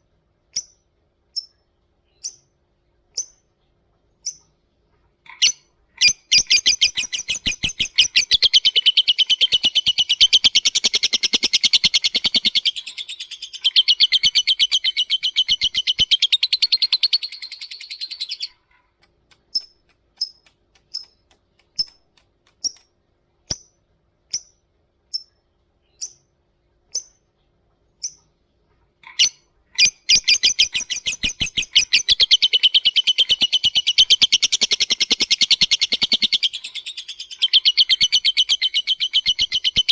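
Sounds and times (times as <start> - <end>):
sharp ticking bird chirps: 0.5 - 3.5, 4.2 - 4.5, 5.3 - 18.6, 19.3 - 22.0, 23.5 - 27.3, 28.0 - 28.4, 29.1 - 39.9
lovebird chattering trill: 5.3 - 18.6, 29.1 - 39.9.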